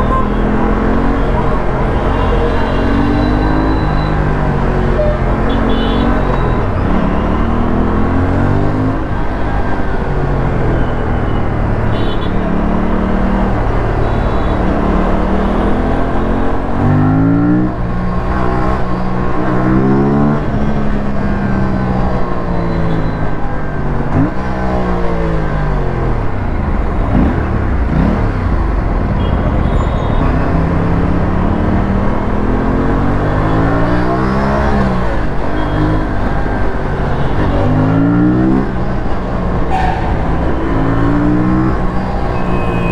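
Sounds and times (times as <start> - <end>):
wind and road noise: 0.0 - 42.9
motorcycle engine revving: 26.0 - 42.6.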